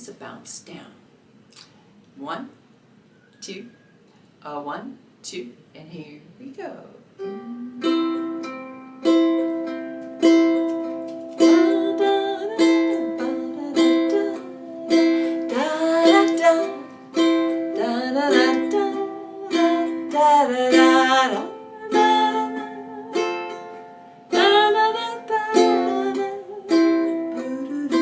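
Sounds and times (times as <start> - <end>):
person humming: 7.2 - 8.5, 11.4 - 23.6
ukulele strumming: 7.2 - 28.0.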